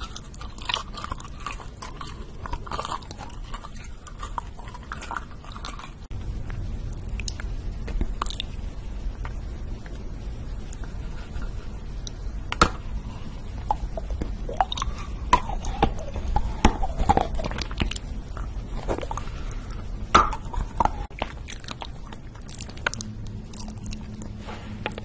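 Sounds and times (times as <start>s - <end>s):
wet mouth chewing smacks: 8.1s - 8.6s, 13.6s - 19.8s, 20.5s - 25.0s.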